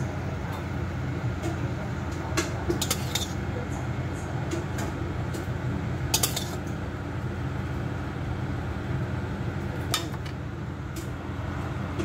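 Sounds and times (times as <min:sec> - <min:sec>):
tableware clinking: 0:02.8 - 0:03.4, 0:06.2 - 0:06.6.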